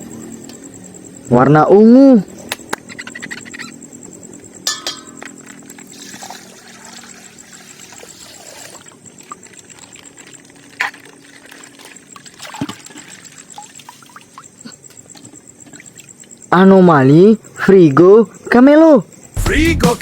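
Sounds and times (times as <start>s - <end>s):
water pouring and trickling: 5.6s - 16.2s.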